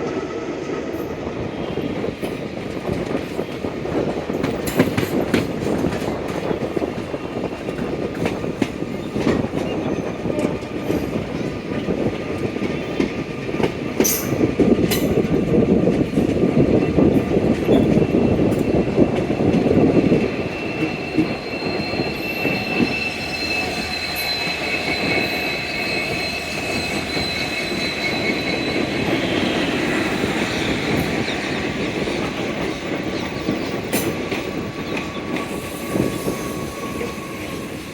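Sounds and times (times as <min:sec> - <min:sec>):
train rumbling on track: 0:00.0 - 0:37.9
high-pitched wheel squeal: 0:20.0 - 0:32.0, 0:34.8 - 0:37.9.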